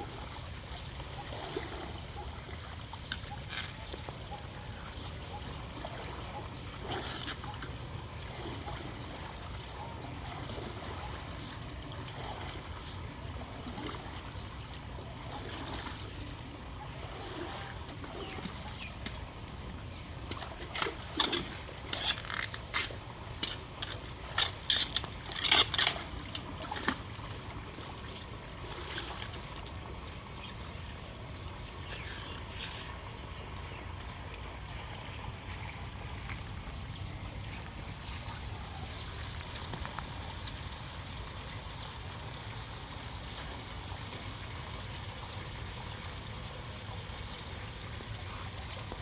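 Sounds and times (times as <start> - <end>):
flood water running: 0.0 - 49.0
sharp water splashes: 5.0 - 29.5.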